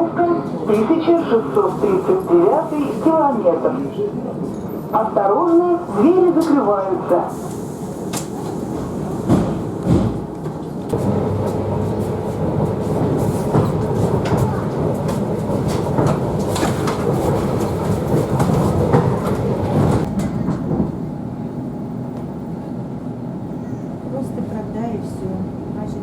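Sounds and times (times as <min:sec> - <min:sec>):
train rumbling: 0:00.0 - 0:26.0.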